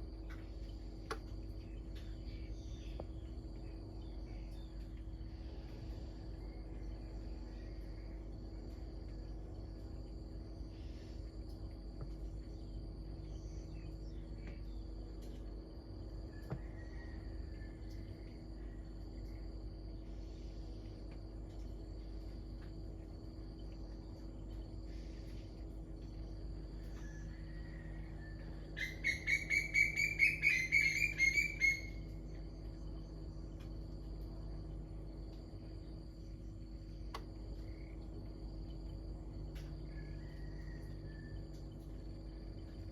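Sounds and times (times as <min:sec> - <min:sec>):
insects trilling: 0:00.0 - 0:42.9
songbird whistling: 0:28.8 - 0:32.1
bird chirps: 0:28.8 - 0:32.2.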